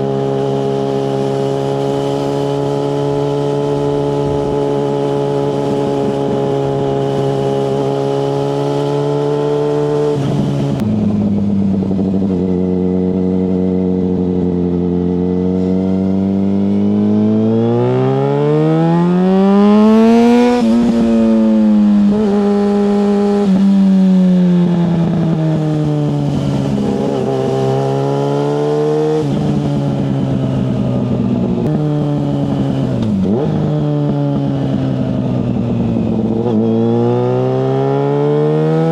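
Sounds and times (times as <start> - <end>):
motorcycle engine: 0.0 - 38.9.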